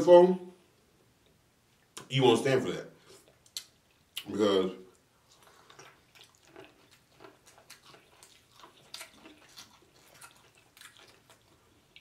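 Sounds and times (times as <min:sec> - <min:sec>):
person chewing corn: 0:05.0 - 0:12.0.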